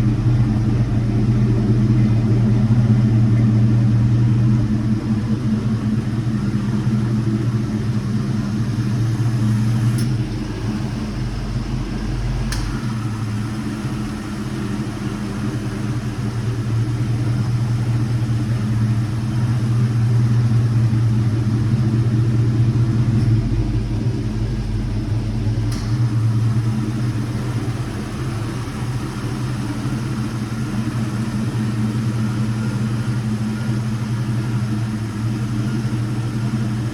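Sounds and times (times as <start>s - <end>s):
engine running with low hum: 0.0s - 36.9s.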